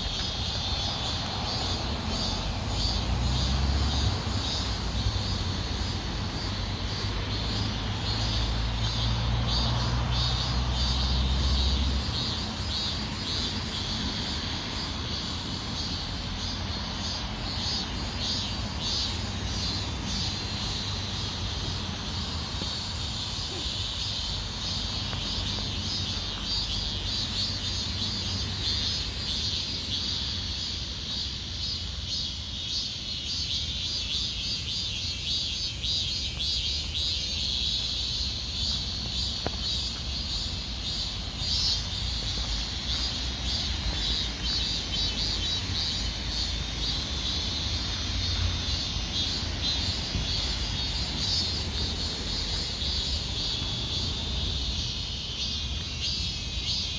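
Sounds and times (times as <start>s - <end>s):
insects chirring: 0.0s - 56.9s.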